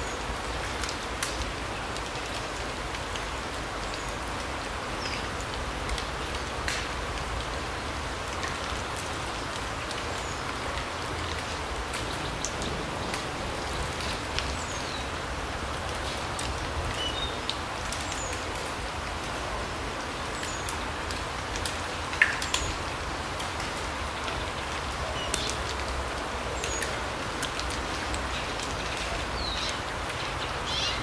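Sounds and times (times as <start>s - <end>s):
rain-like hiss: 0.0s - 31.0s.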